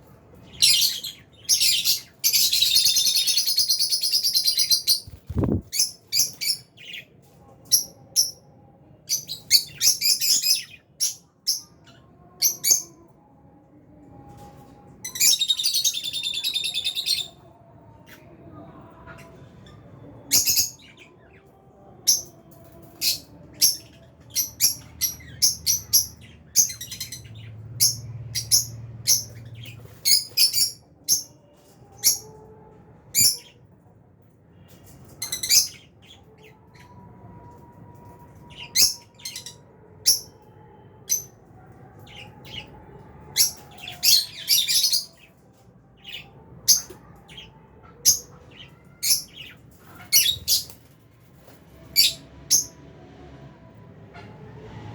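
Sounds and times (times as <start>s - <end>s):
lovebirds chirping: 0.5s - 7.0s.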